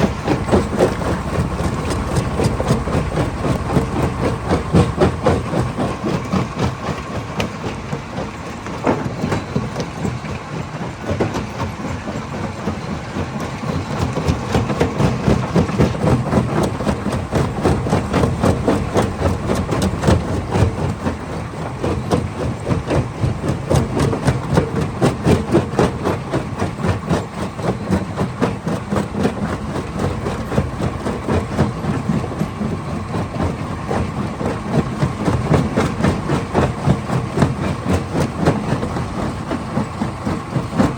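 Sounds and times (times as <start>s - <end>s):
steady machine hum: 0.0s - 24.5s.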